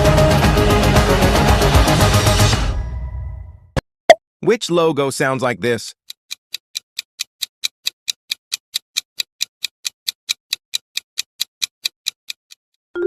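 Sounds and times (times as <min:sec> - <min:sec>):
clock ticking: 0:05.6 - 0:12.7.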